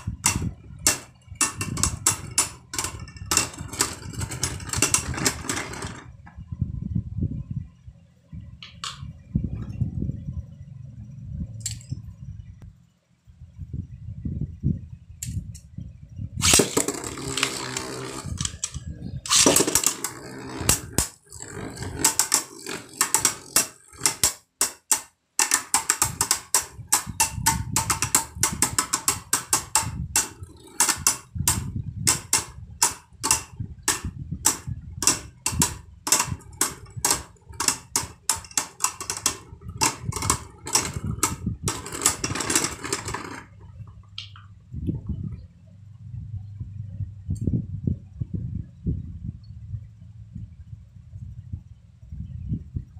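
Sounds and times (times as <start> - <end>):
spinning tops clacking: 0.0 - 6.0, 16.4 - 43.6
spinning tops whirring: 0.0 - 6.1, 16.4 - 44.3.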